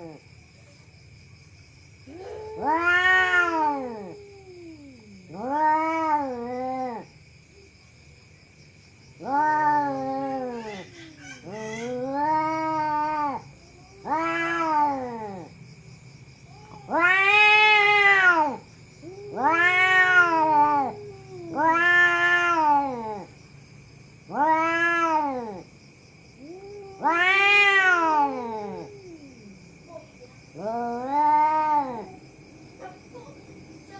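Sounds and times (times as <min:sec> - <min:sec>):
cat yowling: 0:02.0 - 0:07.1, 0:09.2 - 0:15.5, 0:16.4 - 0:23.4, 0:24.3 - 0:25.7, 0:26.3 - 0:33.0.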